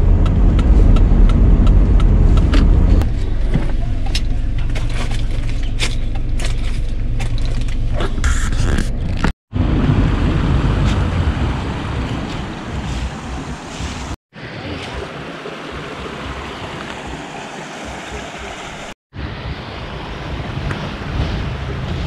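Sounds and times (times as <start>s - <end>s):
stream water rushing: 10.3s - 20.6s.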